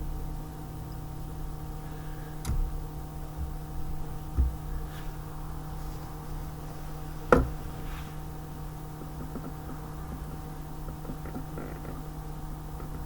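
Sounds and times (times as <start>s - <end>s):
steady low hum: 0.0s - 13.0s
faint small clicks and rattles: 8.9s - 13.0s.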